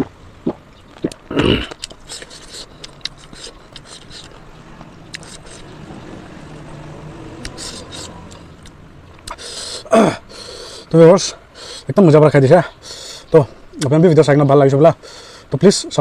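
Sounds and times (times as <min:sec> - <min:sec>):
wet mouth clicks and smacks: 0:00.0 - 0:04.4, 0:05.1 - 0:05.7, 0:07.4 - 0:09.5
person chewing: 0:00.0 - 0:05.8, 0:07.4 - 0:09.9.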